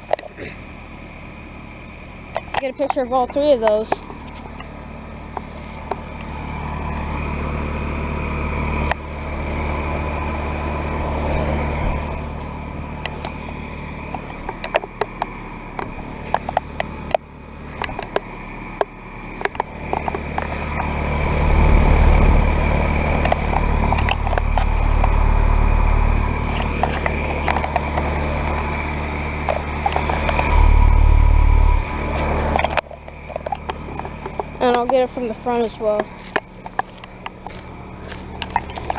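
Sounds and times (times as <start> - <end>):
heat pump fan and compressor hum: 0.0 - 38.9
heavy low rumble: 2.2 - 38.9.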